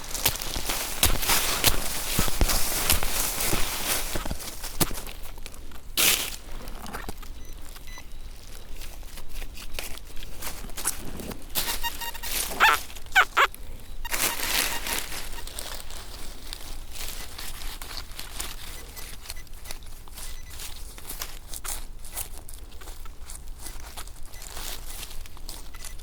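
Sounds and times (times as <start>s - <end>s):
footsteps in leaf litter: 0.0s - 6.8s, 14.1s - 18.8s
dog barking: 12.6s - 13.5s.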